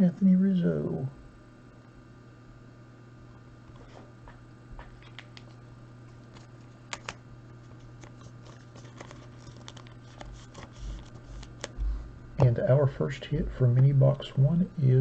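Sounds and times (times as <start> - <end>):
steady low hum: 0.0 - 15.0
trading cards clicking: 6.3 - 7.2, 7.9 - 11.8.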